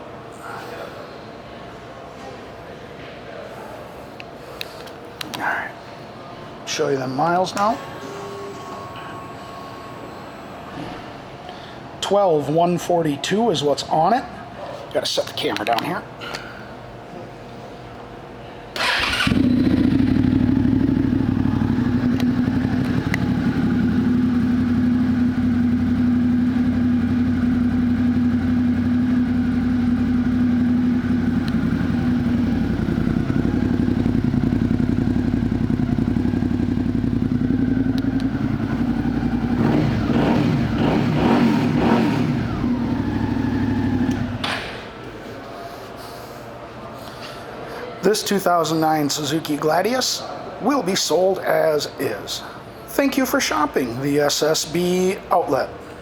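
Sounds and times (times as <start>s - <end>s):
motorcycle engine idling and revving: 18.8s - 44.4s.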